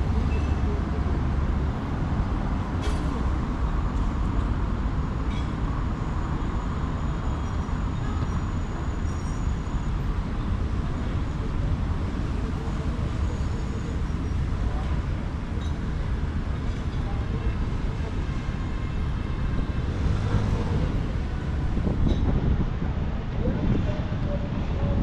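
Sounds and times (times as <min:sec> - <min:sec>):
street traffic rumble: 0:00.0 - 0:25.0.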